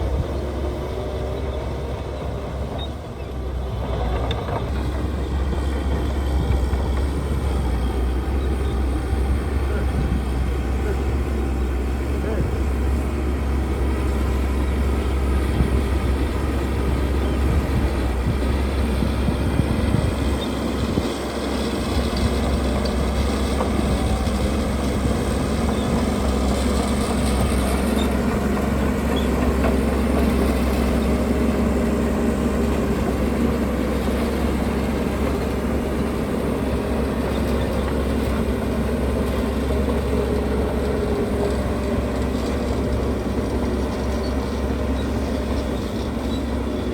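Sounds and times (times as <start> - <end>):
heavy diesel machinery droning: 0.0 - 46.9.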